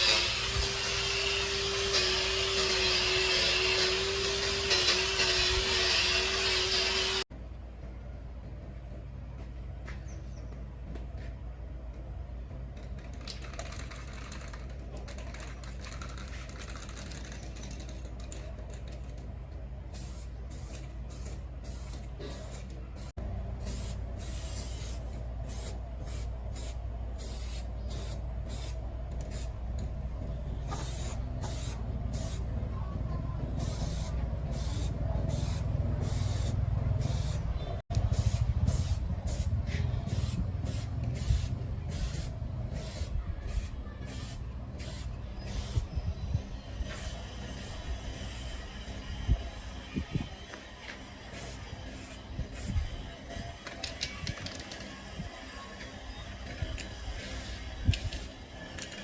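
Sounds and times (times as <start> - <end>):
compressed-air spray hissing: 19.9 - 29.6, 30.6 - 32.5, 33.5 - 49.0, 51.2 - 53.1, 57.0 - 58.4
low machine hum: 25.0 - 53.6.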